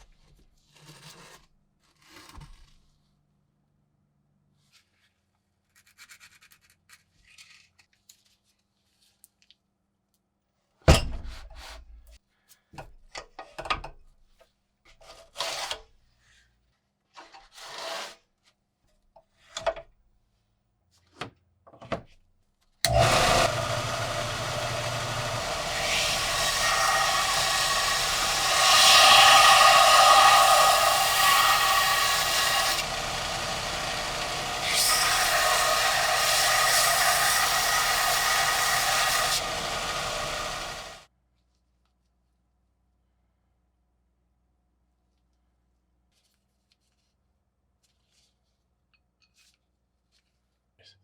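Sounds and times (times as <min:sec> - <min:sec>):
scraping strokes on metal: 0:22.9 - 0:40.9
power tool whirring: 0:22.9 - 0:41.0.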